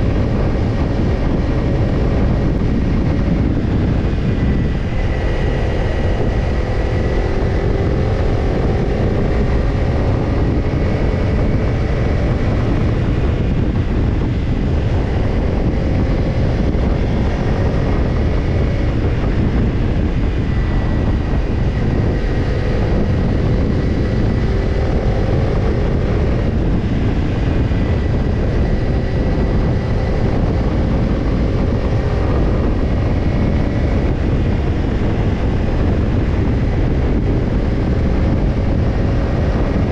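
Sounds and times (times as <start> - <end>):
motorcycle engine cruising: 0.0 - 39.9
wind rush on microphone: 0.0 - 39.9.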